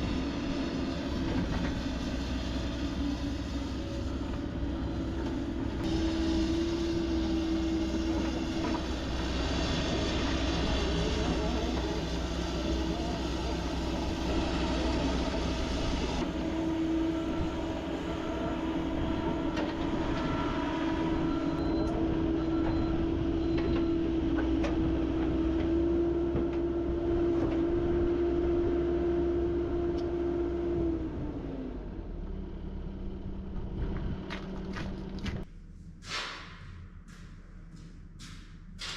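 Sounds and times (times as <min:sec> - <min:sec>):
steady machine whine: 0:00.0 - 0:23.9
excavator diesel engine running: 0:00.0 - 0:36.2.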